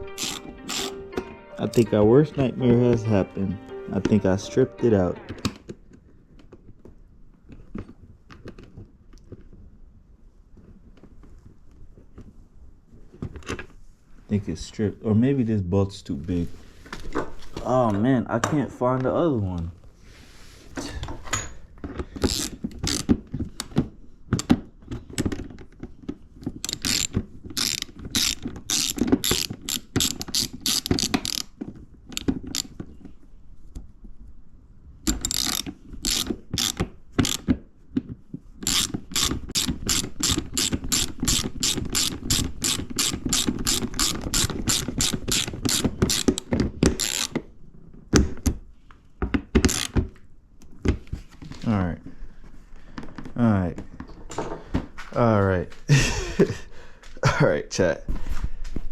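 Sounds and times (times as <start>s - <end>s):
ratchet wrench clicking: 0.1s - 1.0s, 22.2s - 23.1s, 26.7s - 31.5s, 35.1s - 37.4s, 38.6s - 47.4s, 49.7s - 50.0s.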